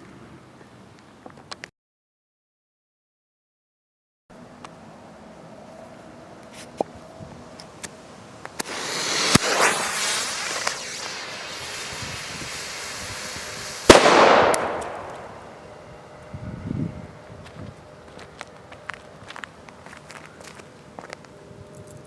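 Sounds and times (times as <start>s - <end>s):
fuse hissing: 8.4s - 15.6s
sharp bang with echo: 13.9s - 15.5s.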